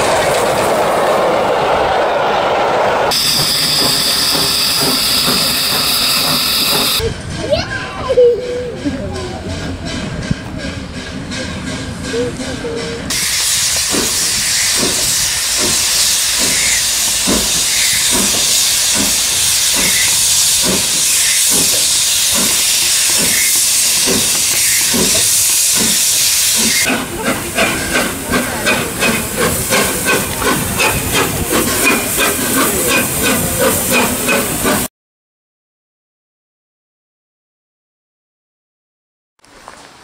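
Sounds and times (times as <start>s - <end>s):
steam locomotive hissing: 3.1s - 34.9s.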